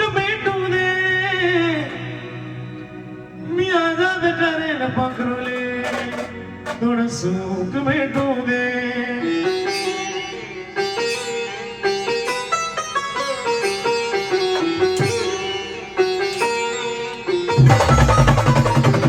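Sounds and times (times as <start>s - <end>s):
twangy sitar-like melody: 5.0s - 7.4s, 9.4s - 19.0s.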